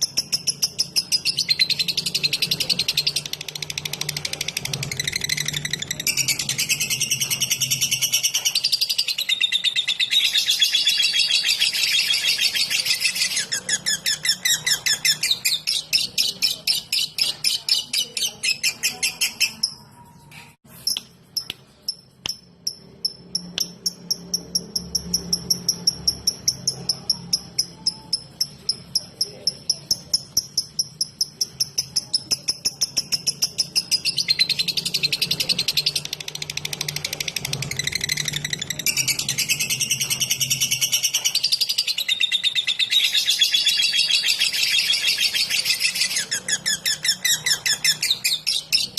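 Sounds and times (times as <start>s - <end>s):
lovebird ticking chatter: 20.8s - 48.9s.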